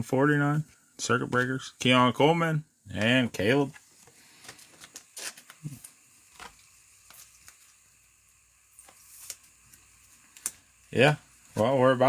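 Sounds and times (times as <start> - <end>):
trading cards being handled: 3.0 - 7.8, 8.7 - 10.7.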